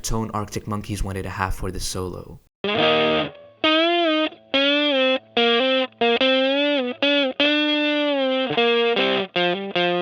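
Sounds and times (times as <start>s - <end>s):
distorted electric guitar solo: 2.7s - 10.0s.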